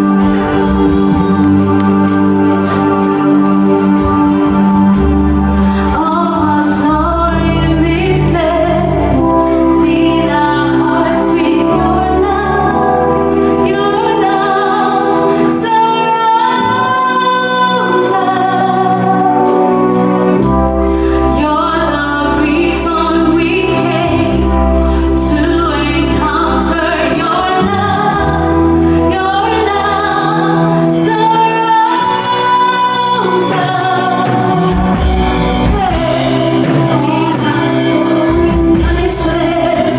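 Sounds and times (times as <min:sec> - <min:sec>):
band with bass line: 0:00.0 - 0:39.9
person singing with backing voices: 0:21.2 - 0:39.9.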